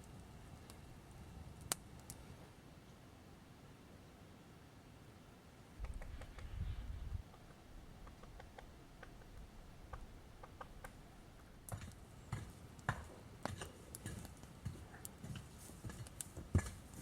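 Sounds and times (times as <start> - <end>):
small clicks and light knocks: 7.3 - 17.0.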